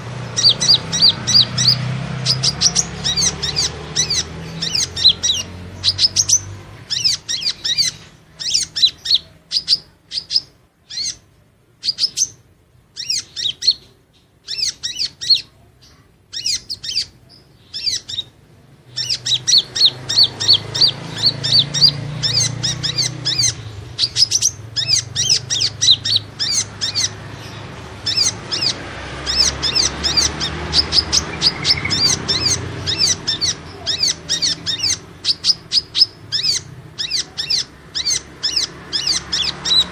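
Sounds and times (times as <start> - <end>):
sunbird chirping: 0.0 - 39.9.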